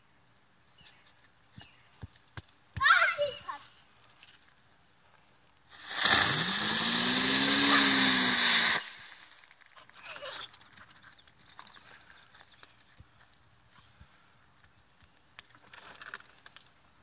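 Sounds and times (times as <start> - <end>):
spinning firework hissing: 5.7 - 9.6.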